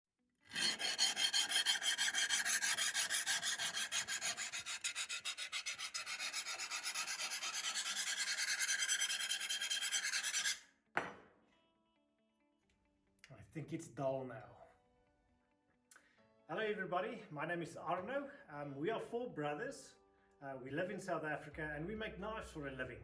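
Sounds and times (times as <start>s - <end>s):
fast rasping strokes: 0.5s - 10.6s.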